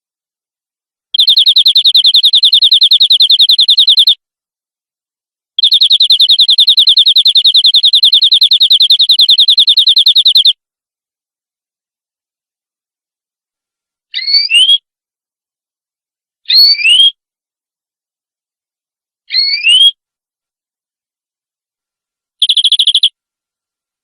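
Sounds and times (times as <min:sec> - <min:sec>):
canary trilling: 0:01.2 - 0:04.2, 0:05.6 - 0:10.5, 0:22.4 - 0:23.1.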